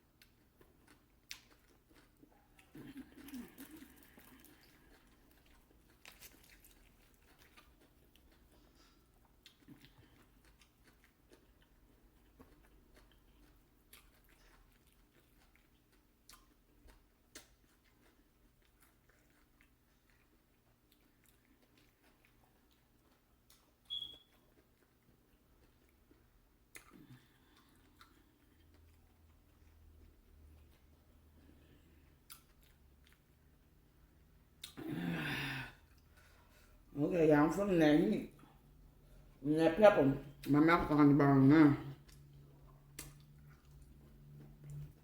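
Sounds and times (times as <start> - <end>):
chewing fried chicken: 0.0 - 34.8, 40.1 - 45.0
soft mouth clicks: 42.9 - 43.3.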